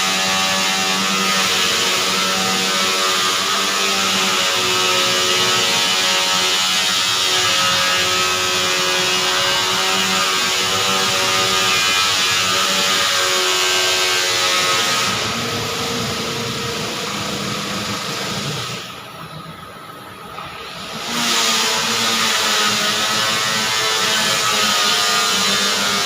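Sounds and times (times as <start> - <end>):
welding arc hissing buzz: 0.0 - 19.2.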